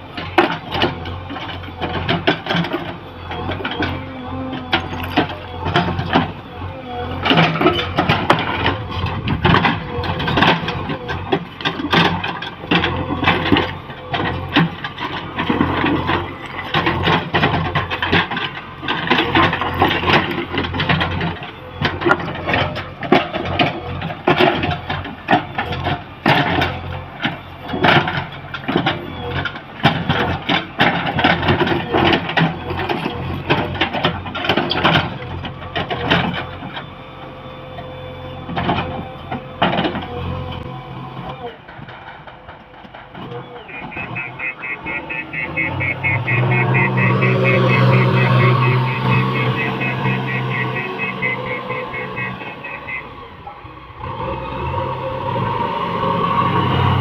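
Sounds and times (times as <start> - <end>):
excavator diesel engine under load: 0.0 - 57.0.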